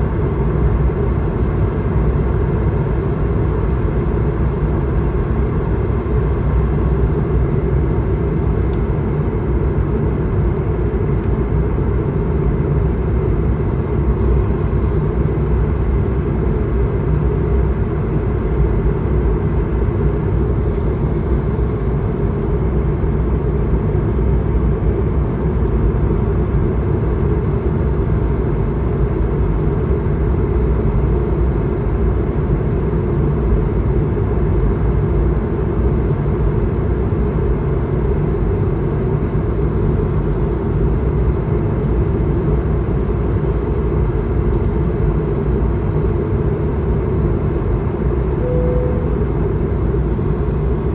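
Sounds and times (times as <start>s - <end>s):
jet engines droning: 39.2s - 50.9s
airplane cabin airflow rush: 41.4s - 50.9s
faint high whine: 48.2s - 50.9s.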